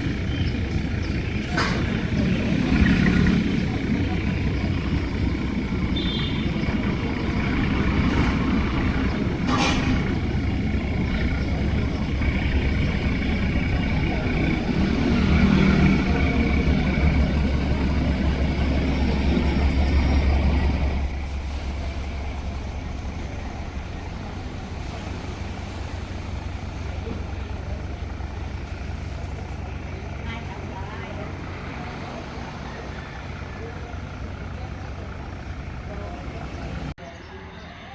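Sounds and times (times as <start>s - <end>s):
engine droning: 0.0s - 37.9s.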